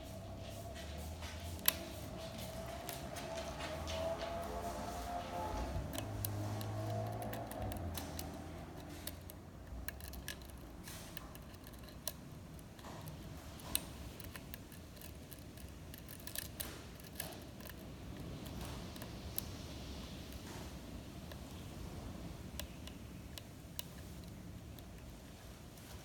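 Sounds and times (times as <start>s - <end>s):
lock pick clicks and scraping: 5.9s - 19.5s.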